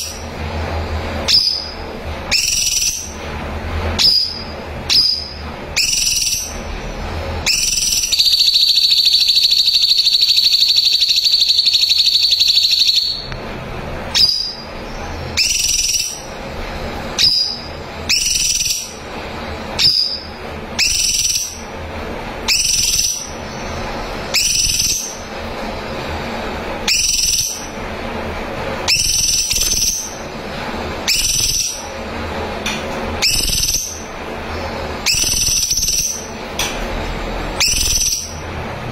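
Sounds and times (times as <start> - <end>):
bird buzzy trill: 0.0 - 38.8
bird whistling rising notes: 1.2 - 3.2, 4.0 - 6.6, 7.4 - 13.3, 14.1 - 16.3, 17.2 - 19.0, 19.8 - 21.7, 22.5 - 23.5, 24.2 - 25.3, 26.8 - 27.7, 28.9 - 30.3, 31.0 - 31.9, 33.2 - 34.1, 35.0 - 36.4, 37.6 - 38.4.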